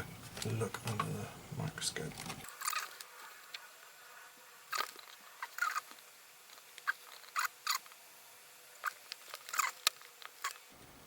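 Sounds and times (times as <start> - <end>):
faint steady hum: 0.0 - 11.0
small clicks and scrapes: 4.7 - 8.0, 8.8 - 10.7.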